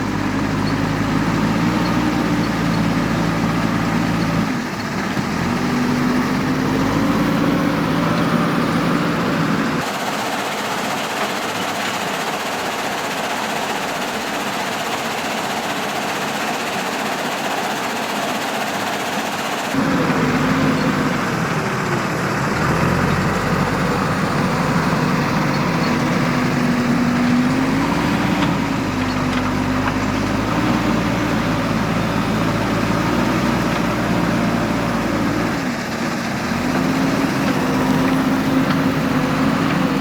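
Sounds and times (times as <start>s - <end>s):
heavy diesel engine revving: 0.0s - 9.9s, 19.7s - 40.0s.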